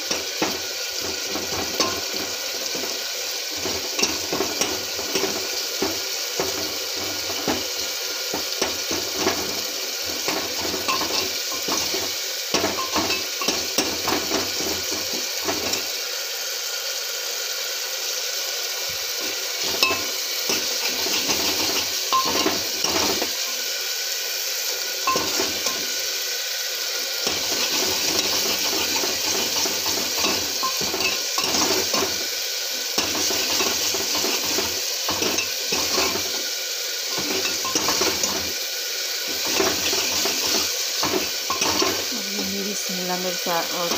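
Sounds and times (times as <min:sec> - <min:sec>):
spatula scraping and clinking on pan: 0:00.0 - 0:15.9, 0:19.2 - 0:23.7, 0:25.0 - 0:26.0, 0:27.2 - 0:32.3, 0:33.0 - 0:36.5, 0:37.1 - 0:38.6, 0:39.2 - 0:42.2
vegetables sizzling in oil: 0:00.0 - 0:43.9.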